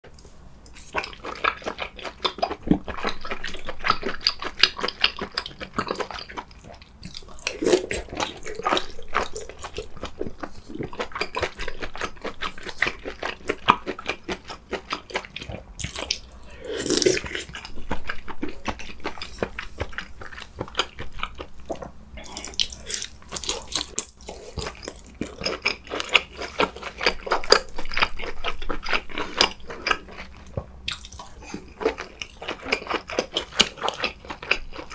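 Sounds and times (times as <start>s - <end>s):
wet chewing and mouth smacking: 0.7s - 34.9s.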